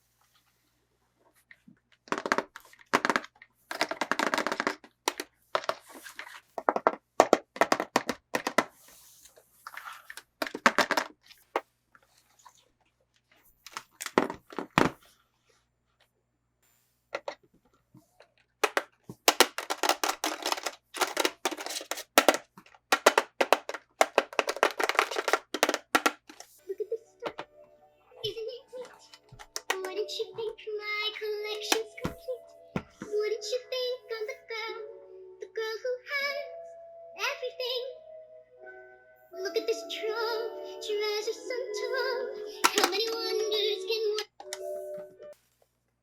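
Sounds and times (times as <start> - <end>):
toy packaging crinkling: 2.1 - 8.7, 13.7 - 14.9, 18.6 - 27.6, 28.2 - 33.1, 40.7 - 44.6.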